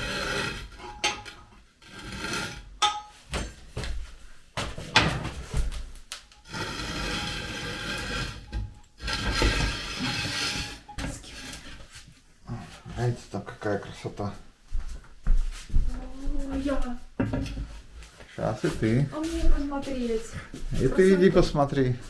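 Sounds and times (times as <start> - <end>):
metal clanks at stove: 0.8 - 1.5, 2.8 - 3.7
scraping: 5.2 - 13.2.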